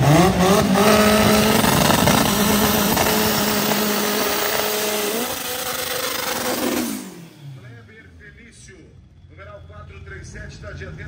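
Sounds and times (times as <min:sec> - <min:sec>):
car engine at high revs: 0:00.0 - 0:09.1
tyres spinning: 0:00.3 - 0:07.3.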